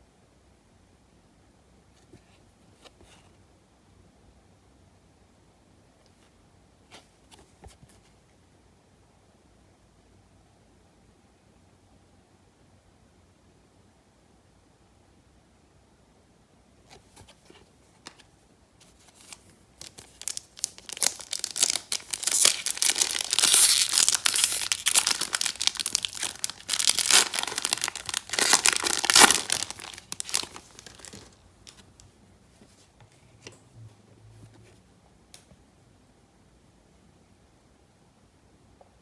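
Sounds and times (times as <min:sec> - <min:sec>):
plastic wrapper tearing and crinkling: 0:19.8 - 0:32.0.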